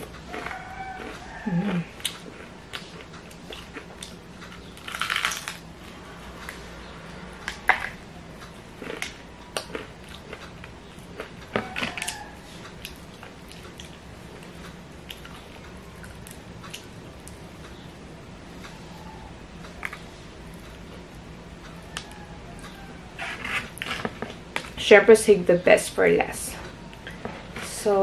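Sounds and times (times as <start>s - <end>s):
crunching fried chicken: 0.0s - 6.7s, 7.4s - 17.0s.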